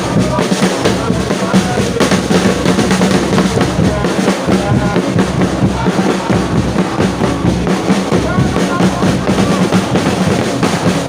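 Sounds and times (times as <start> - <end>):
crowd din: 0.0 - 11.0
drums beating: 0.0 - 11.0.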